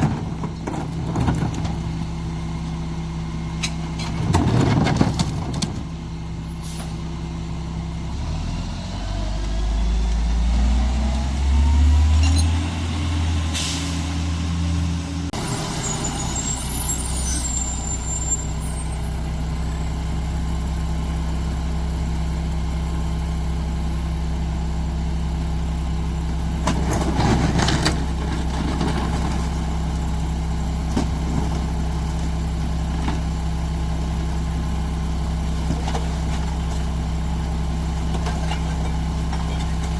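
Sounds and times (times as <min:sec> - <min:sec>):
diesel truck engine idling and revving: 0:00.0 - 0:39.9
air brakes hissing: 0:06.4 - 0:07.0, 0:13.5 - 0:14.2.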